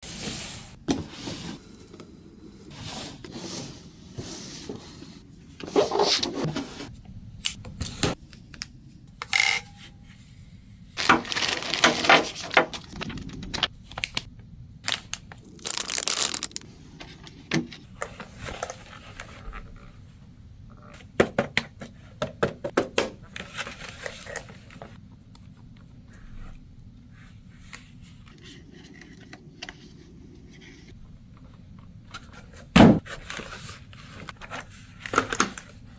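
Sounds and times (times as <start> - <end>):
packaging tearing and crinkling: 11.0 - 14.3, 14.9 - 16.7.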